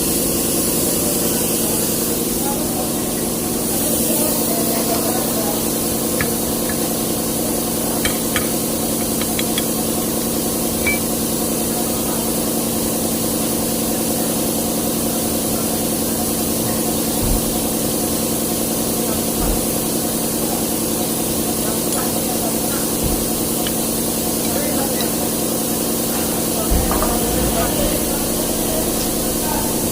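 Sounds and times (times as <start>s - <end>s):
truck diesel engine idling: 26.7s - 29.9s.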